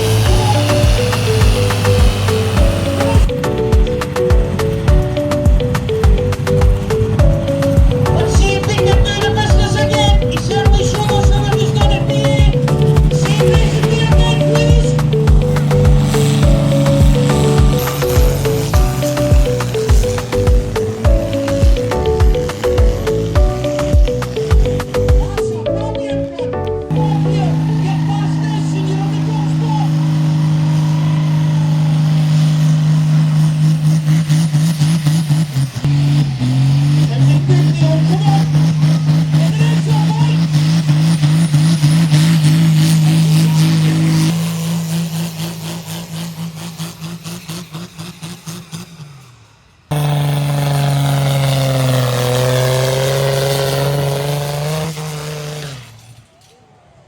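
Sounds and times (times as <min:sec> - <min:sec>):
tractor engine running loud: 0:00.0 - 0:25.7, 0:26.9 - 0:56.2.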